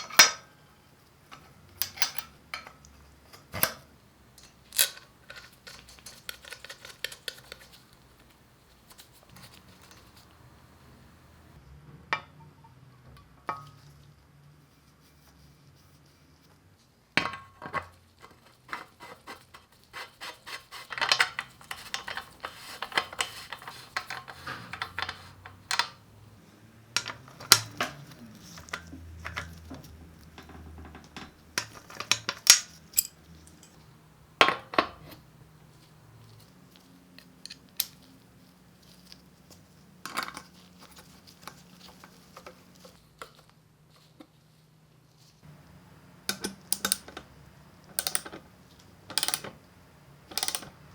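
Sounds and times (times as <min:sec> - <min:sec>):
metal parts clinking: 0:01.3 - 0:03.8, 0:04.4 - 0:07.6, 0:27.0 - 0:33.8, 0:45.5 - 0:50.9.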